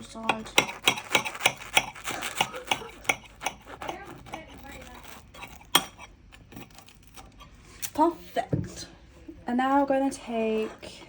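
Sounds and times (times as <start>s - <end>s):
knife sawing through sandwich: 0.2s - 7.4s.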